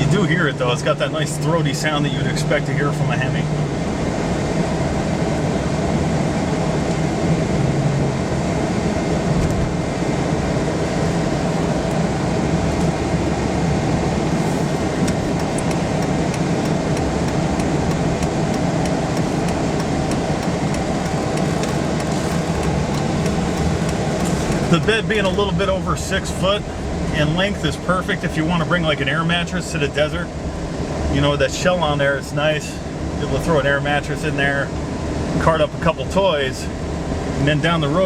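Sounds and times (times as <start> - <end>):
car engine hum in cabin: 0.0 - 38.0
light regular ticking: 14.2 - 25.5.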